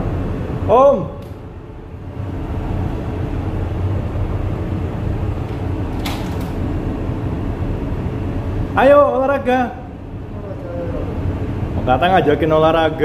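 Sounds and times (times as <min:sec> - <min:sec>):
ship machinery drone: 0:00.0 - 0:13.0.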